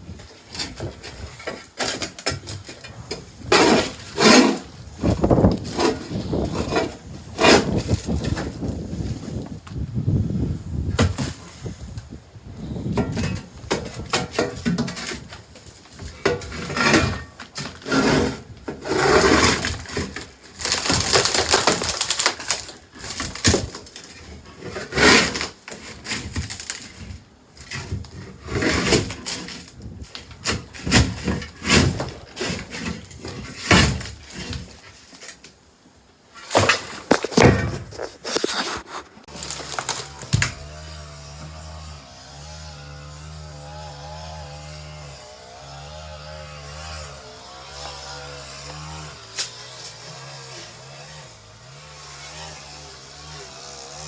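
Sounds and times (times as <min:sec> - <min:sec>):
knocking and cracking: 0:00.5 - 0:08.7, 0:12.8 - 0:18.1, 0:18.7 - 0:35.4, 0:36.4 - 0:41.6.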